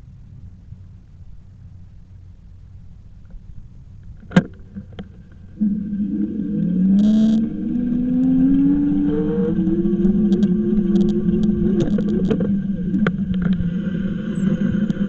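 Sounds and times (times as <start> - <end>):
motor whining: 5.4 - 15.0.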